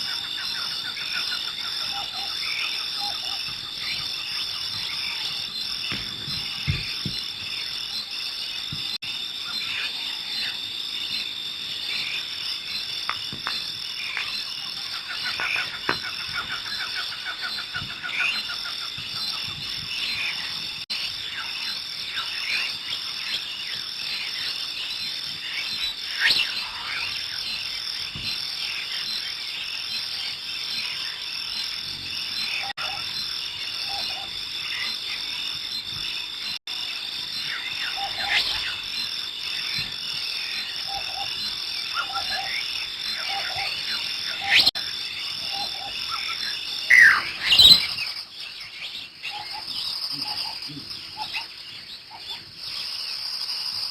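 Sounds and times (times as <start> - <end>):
bird chirps and calls: 45.4 - 53.2.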